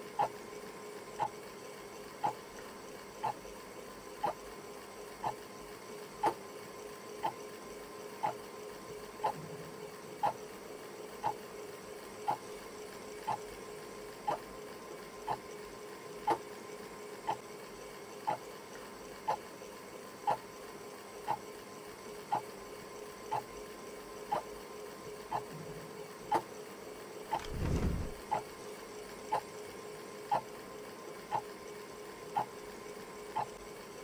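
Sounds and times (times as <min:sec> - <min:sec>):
steady hum: 0:27.3 - 0:28.2.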